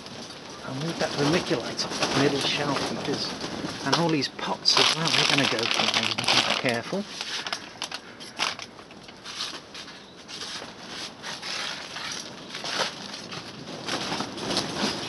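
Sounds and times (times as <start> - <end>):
plastic cover flapping in wind: 0.0 - 15.0.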